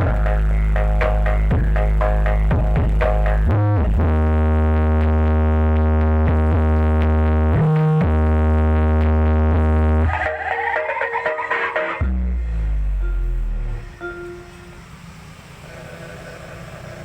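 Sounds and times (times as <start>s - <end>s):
deep bass note through subwoofers: 0.0s - 10.1s, 12.0s - 14.8s.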